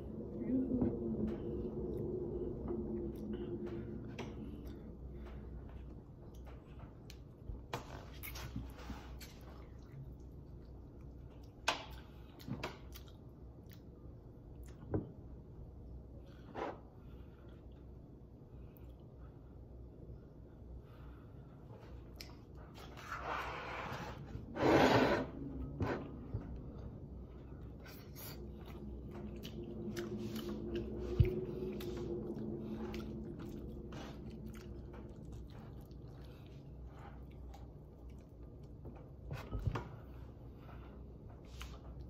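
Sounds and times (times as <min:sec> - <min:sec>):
faint low hum: 0:00.0 - 0:42.0
man chewing: 0:03.1 - 0:14.8, 0:21.8 - 0:24.3, 0:25.5 - 0:39.3.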